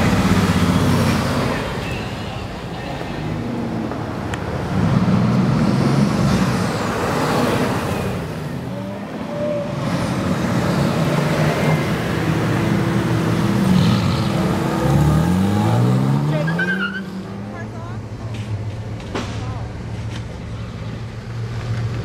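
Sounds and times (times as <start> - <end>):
car engine pulling away: 3.3 - 17.5.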